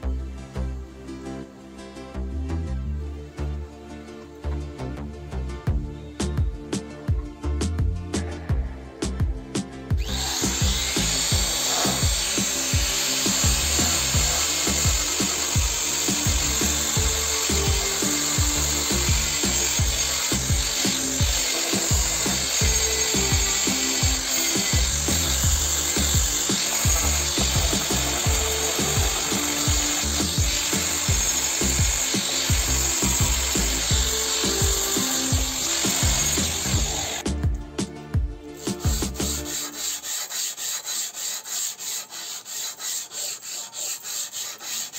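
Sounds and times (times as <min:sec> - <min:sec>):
background music with steady beat: 0:00.0 - 0:44.9
angle grinder grinding steel: 0:10.0 - 0:37.3, 0:38.6 - 0:44.9.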